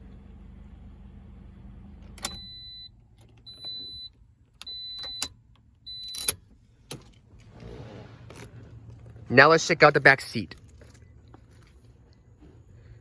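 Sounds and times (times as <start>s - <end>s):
car engine idling: 0.0s - 13.0s
high warning chime beeps: 3.5s - 5.3s, 5.9s - 6.4s.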